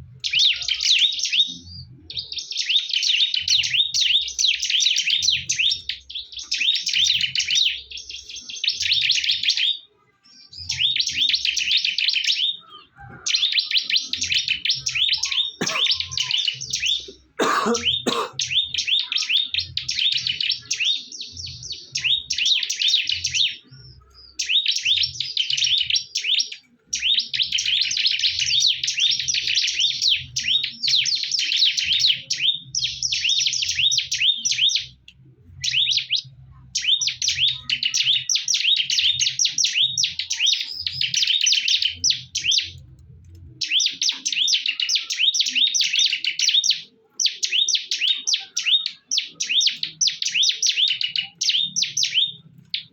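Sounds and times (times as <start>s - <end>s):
birds chattering song: 0.0s - 52.9s.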